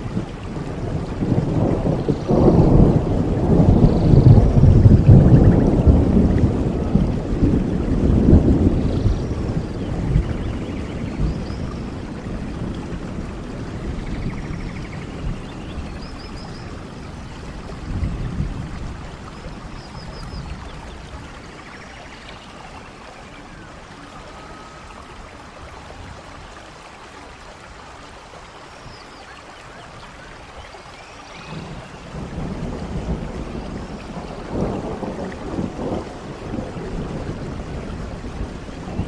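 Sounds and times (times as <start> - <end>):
thunder rumble: 0.0 - 22.0, 31.4 - 39.0
steady rain: 0.0 - 39.0
faint high bird calls: 21.5 - 25.4.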